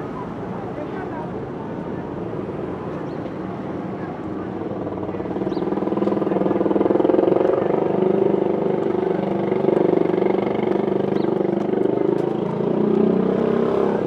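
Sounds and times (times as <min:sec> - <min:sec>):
vehicle engine droning: 0:04.1 - 0:14.0.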